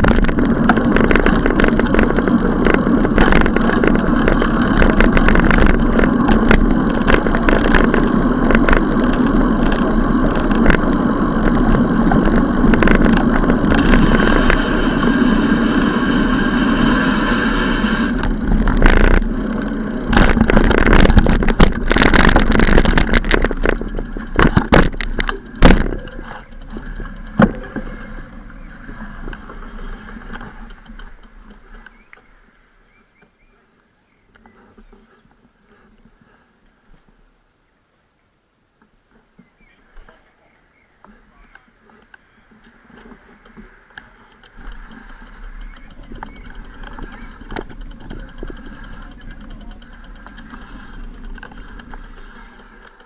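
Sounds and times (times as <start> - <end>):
bicycle knocks and rattles: 0.0 - 16.0, 18.1 - 32.4, 42.6 - 53.0
wind and road noise: 0.0 - 53.0.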